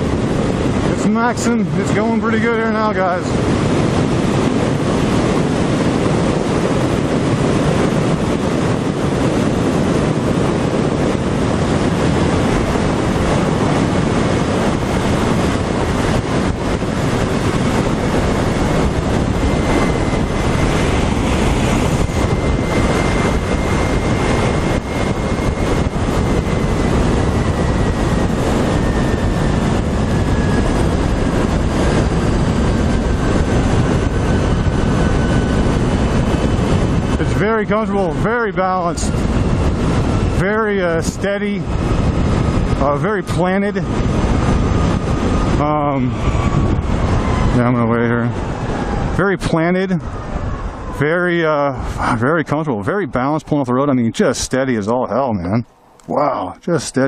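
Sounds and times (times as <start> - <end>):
road noise: 0.0 - 57.0
wind rushing over microphone: 0.0 - 57.0
electric motor whine: 1.8 - 40.4.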